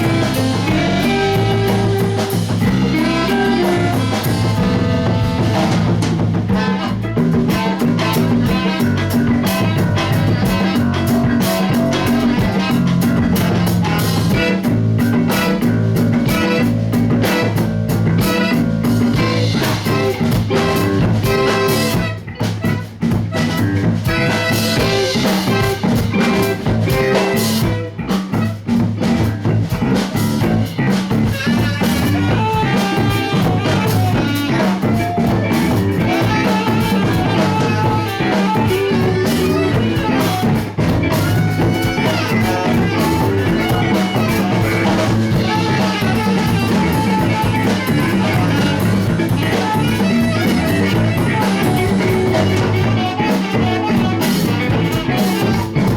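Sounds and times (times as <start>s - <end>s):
drum kit beat: 0.0s - 55.9s
guitar: 0.0s - 55.9s
live band playing instrumental: 0.0s - 55.9s.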